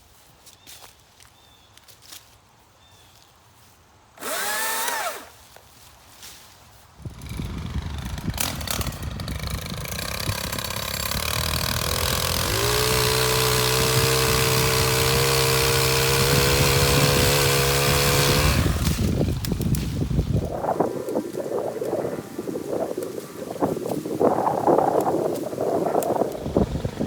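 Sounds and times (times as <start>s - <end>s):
pole saw small engine: 4.2s - 5.5s, 7.0s - 21.9s, 22.7s - 27.0s.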